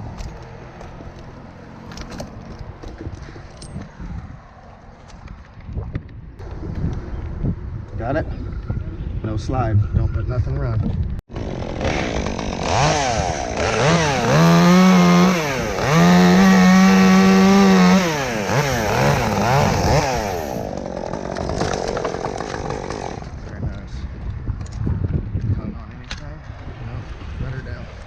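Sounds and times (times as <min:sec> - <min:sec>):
chainsaw revving: 0:11.3 - 0:23.4.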